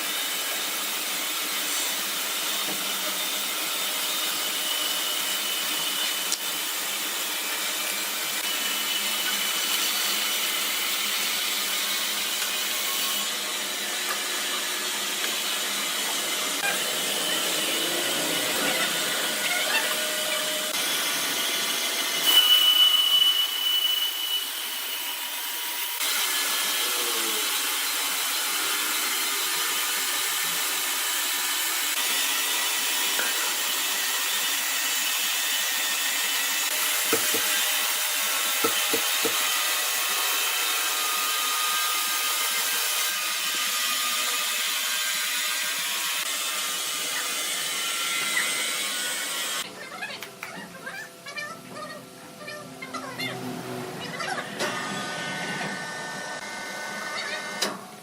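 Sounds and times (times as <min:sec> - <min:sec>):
sawmill machinery running: 0:00.0 - 0:49.8, 0:53.1 - 0:58.0
high-pitched saw blade whine: 0:15.4 - 0:49.6.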